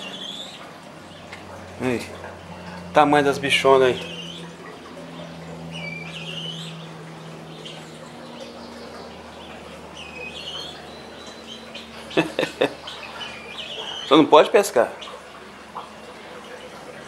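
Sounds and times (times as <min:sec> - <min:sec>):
bird chirping: 0:00.0 - 0:01.5, 0:03.5 - 0:16.9
steady low hum: 0:00.0 - 0:17.0.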